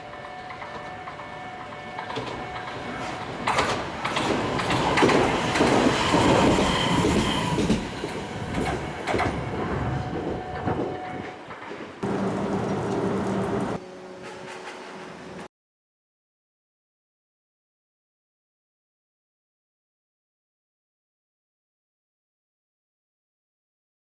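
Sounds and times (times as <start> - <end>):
tram wheels rumbling on rails: 0.0 - 15.5
high squeal: 5.3 - 11.3.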